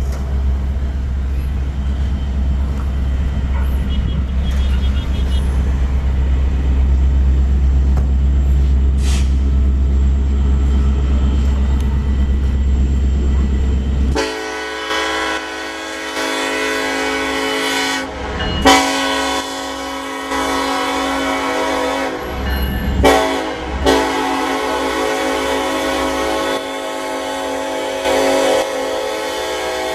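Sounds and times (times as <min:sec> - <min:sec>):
freight train rumbling past: 0:00.0 - 0:29.9
locomotive air horn blasts: 0:03.6 - 0:05.7, 0:14.1 - 0:29.9.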